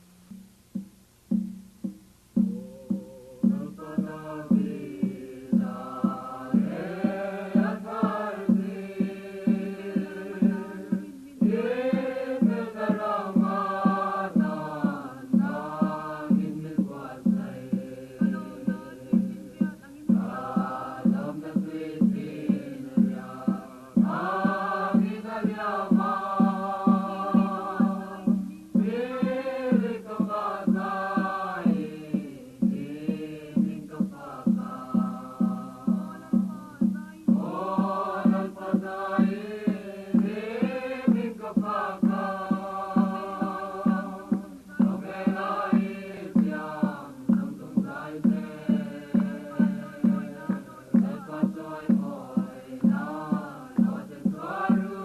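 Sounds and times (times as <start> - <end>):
steady low beat: 0.0 - 55.0
choir singing: 2.5 - 55.0.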